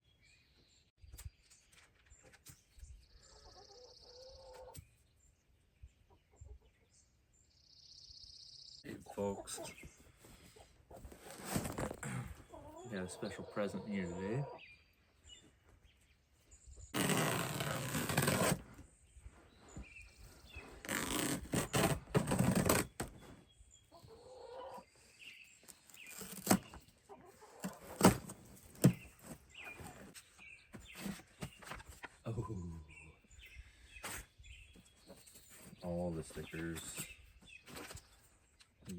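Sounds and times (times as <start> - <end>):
cardboard rustling and scraping: 11.0 - 12.0, 17.0 - 18.8, 19.6 - 23.4.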